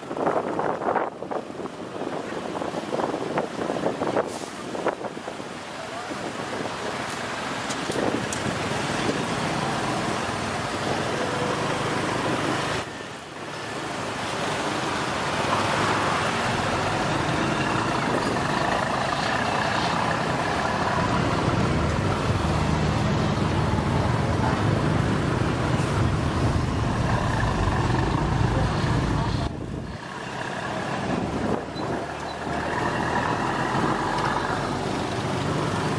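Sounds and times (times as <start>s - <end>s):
traffic engines and road noise: 0.0s - 35.9s
low rumble: 25.6s - 30.0s.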